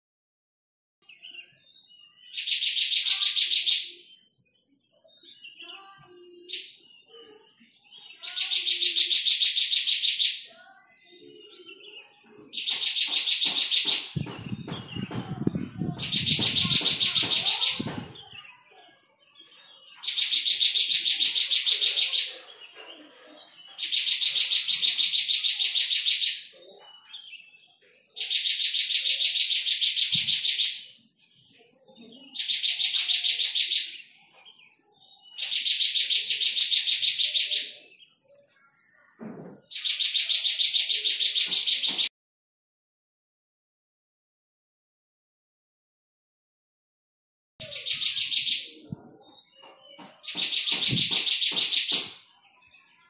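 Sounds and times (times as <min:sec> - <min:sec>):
bird trilling: 0:07.5 - 0:22.3, 0:47.6 - 0:53.0.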